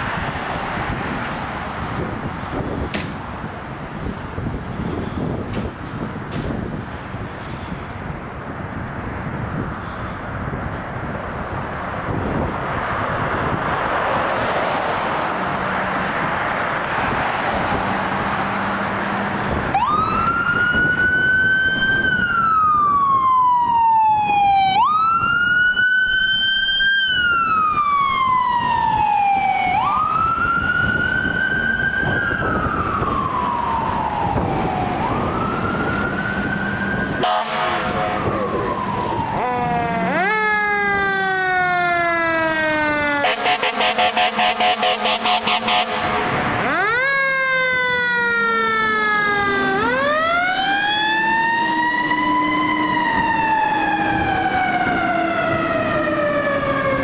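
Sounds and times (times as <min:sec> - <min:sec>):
fire engine siren: 0:00.0 - 0:05.5, 0:08.1 - 0:57.0
passing traffic: 0:00.0 - 0:57.0
second siren: 0:19.5 - 0:57.0.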